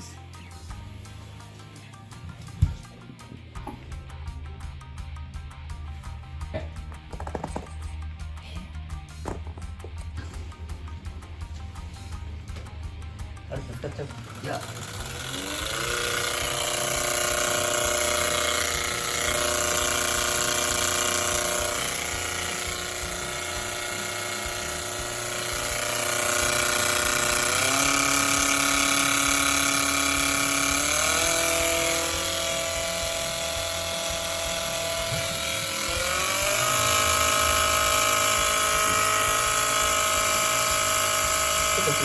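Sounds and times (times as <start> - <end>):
washing machine whine: 10.2 - 42.0.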